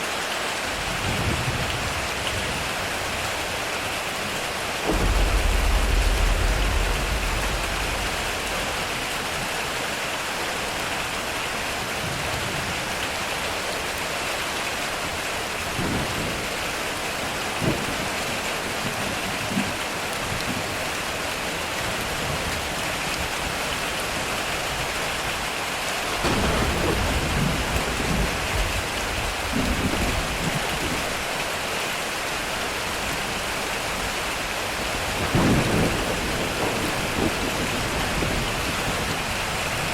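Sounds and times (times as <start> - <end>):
heavy rain on a metal roof: 0.0 - 39.9
thunder rumbling: 4.7 - 11.2, 26.1 - 31.2, 34.7 - 39.9.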